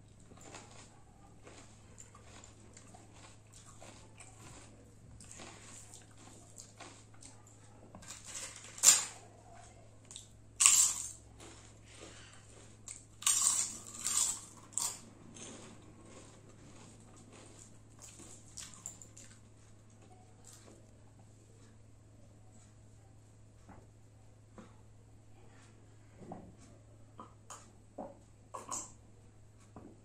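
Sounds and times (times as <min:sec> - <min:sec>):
person chewing crunchy food: 0:00.0 - 0:08.3, 0:10.1 - 0:20.7.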